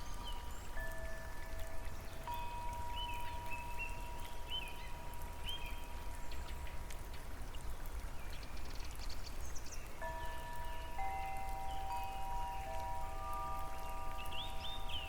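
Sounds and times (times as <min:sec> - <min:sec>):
steady rain: 0:00.0 - 0:15.0
wind chimes ringing: 0:00.8 - 0:04.2, 0:10.0 - 0:15.0.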